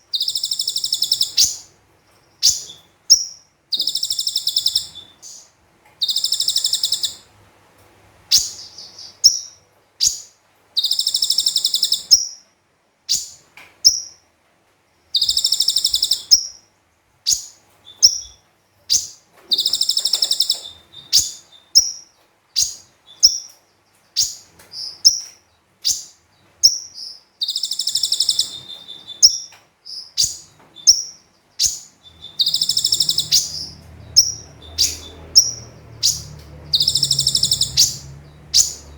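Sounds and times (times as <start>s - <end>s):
bird sharp high chirps: 0.0s - 1.7s, 2.3s - 7.3s, 8.3s - 12.4s, 13.1s - 14.2s, 15.2s - 16.7s, 17.3s - 38.9s
bird high rapid trills: 30.2s - 38.9s.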